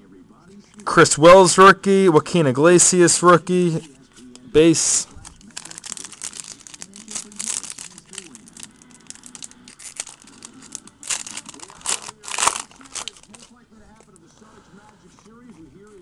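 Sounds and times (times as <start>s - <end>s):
foil wrapper crinkling and tearing: 4.6s - 14.2s.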